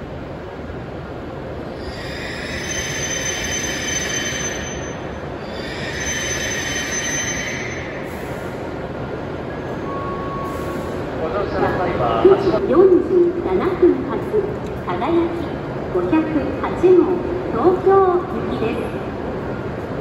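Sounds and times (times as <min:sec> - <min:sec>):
train rumble: 0:00.0 - 0:20.0
high-pitched brake squeal: 0:01.8 - 0:08.5, 0:09.6 - 0:11.0.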